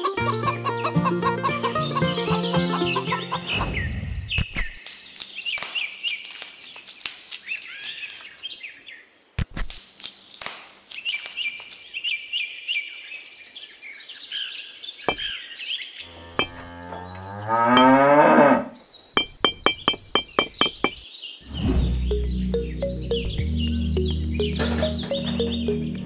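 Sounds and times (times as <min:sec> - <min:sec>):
plucked-string music: 0:00.0 - 0:03.4, 0:21.9 - 0:26.0
small birds chirping: 0:01.7 - 0:09.1, 0:10.1 - 0:18.0, 0:18.8 - 0:26.0.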